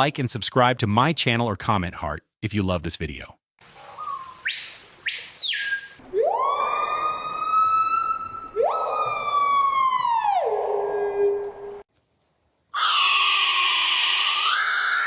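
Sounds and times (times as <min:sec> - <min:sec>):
bird wailing calls: 0:03.8 - 0:09.1.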